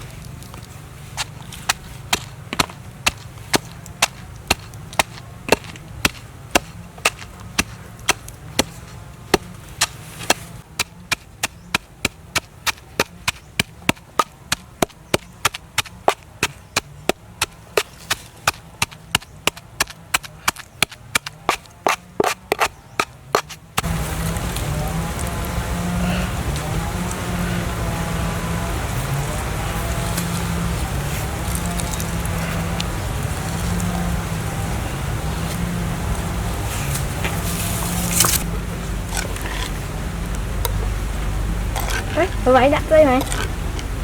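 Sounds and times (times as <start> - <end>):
knife chopping on wooden board: 1.2 - 23.9.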